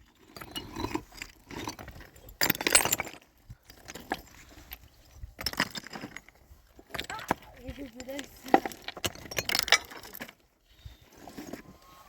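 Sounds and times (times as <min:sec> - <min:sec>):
hard objects clinking and rattling: 0:00.0 - 0:10.5.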